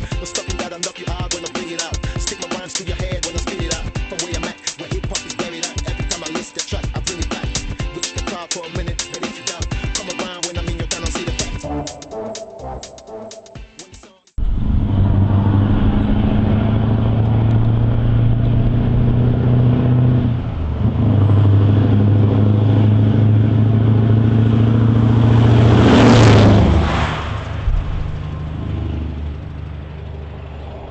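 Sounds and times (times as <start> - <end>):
diesel engine running: 14.4 - 30.9.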